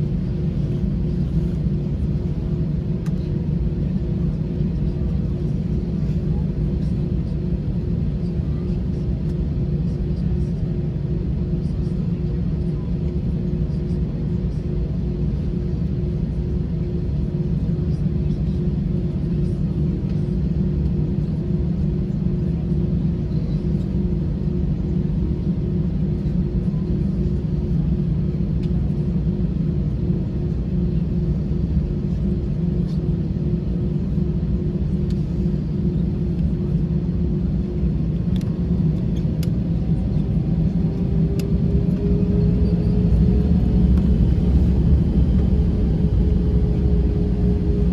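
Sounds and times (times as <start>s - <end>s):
jet engines low rumble: 0.0s - 47.9s
steady hum: 31.0s - 47.9s.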